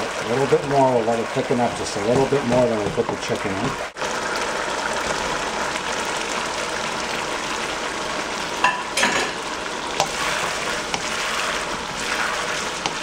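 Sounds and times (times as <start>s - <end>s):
chicken sizzling in a wok: 3.8s - 13.0s
wooden spoon knocking against pan: 10.9s - 11.1s, 12.8s - 13.0s.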